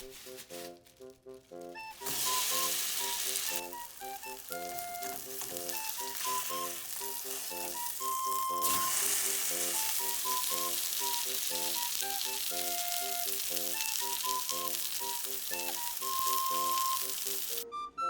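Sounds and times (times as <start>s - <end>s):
light background music: 0.0s - 18.0s
food sizzling in a pan: 1.9s - 17.6s.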